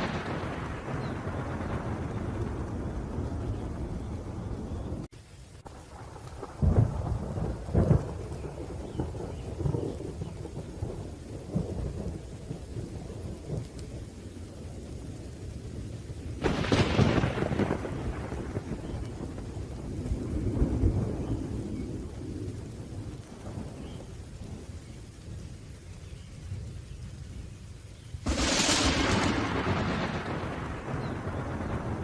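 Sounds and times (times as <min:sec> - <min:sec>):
sharp thunderclap: 0:00.0 - 0:05.1, 0:05.7 - 0:13.7, 0:16.4 - 0:24.6, 0:28.2 - 0:32.0
low rolling thunder: 0:00.0 - 0:32.0
steady rain: 0:00.0 - 0:32.0.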